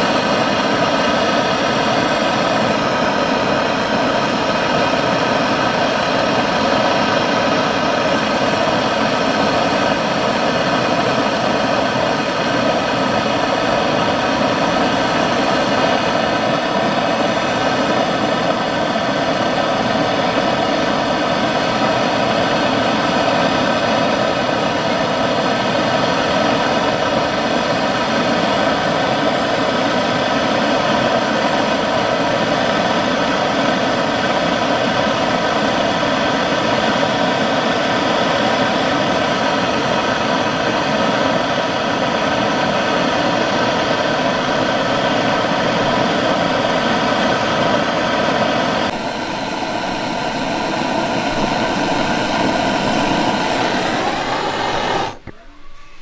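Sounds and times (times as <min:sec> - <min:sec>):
motor-driven machine running: 0:48.9 - 0:56.0.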